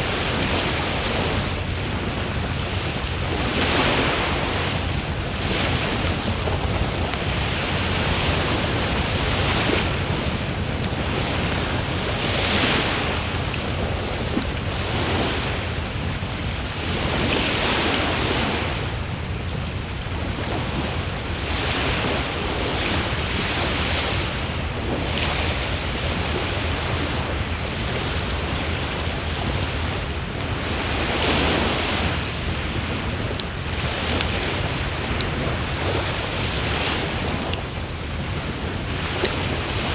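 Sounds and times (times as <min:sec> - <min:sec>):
fire crackles: 0:00.0 - 0:39.9
flames rushing: 0:04.2 - 0:17.4, 0:24.2 - 0:39.9.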